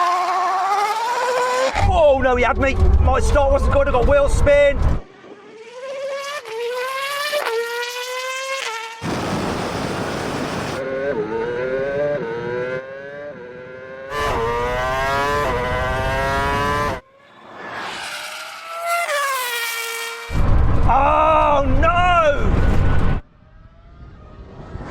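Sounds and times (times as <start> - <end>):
race car engine accelerating: 2.6 - 20.6
loud rushing noise: 9.0 - 10.8.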